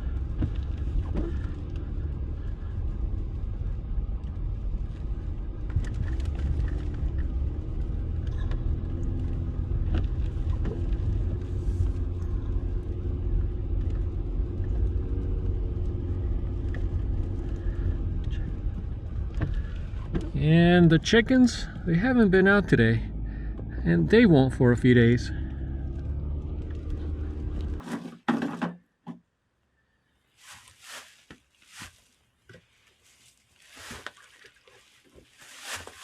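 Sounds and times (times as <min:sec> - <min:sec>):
vehicle engine rumbling: 0:00.0 - 0:27.9.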